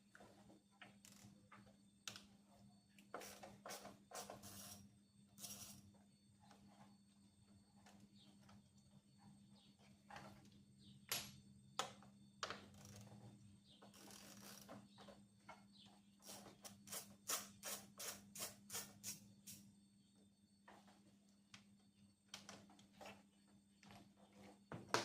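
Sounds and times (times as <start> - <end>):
ratchet wrench clicking: 5.4 - 5.8.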